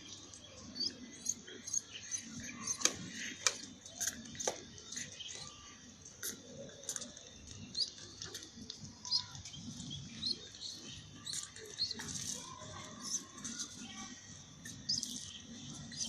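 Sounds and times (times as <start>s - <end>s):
pigeon chick squeaking: 1.2s - 2.9s.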